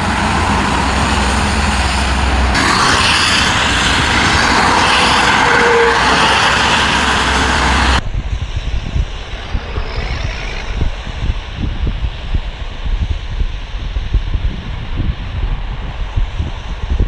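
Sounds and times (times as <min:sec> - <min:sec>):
highway traffic noise: 0:00.0 - 0:13.5
wind buffeting microphone: 0:00.0 - 0:17.0.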